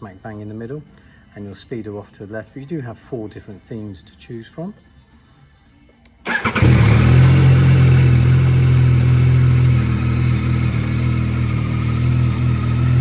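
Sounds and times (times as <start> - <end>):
motorcycle engine idling: 6.3 - 13.0
motorcycle starter cranking: 6.3 - 13.0.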